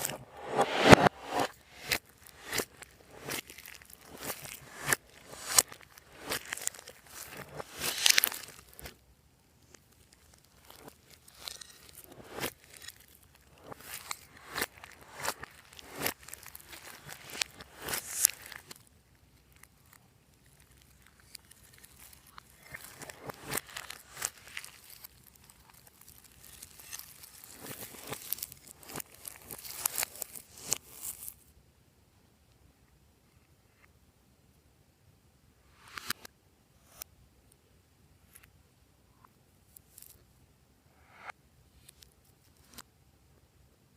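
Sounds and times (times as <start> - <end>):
slime squished by hand: 10.0 - 18.8, 19.7 - 31.3.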